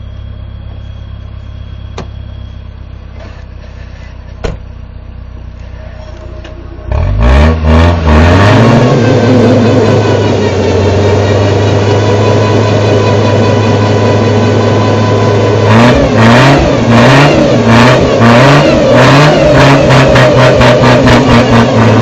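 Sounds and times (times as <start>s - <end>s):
tires spinning: 5.6s - 22.0s
truck engine revving: 6.2s - 22.0s.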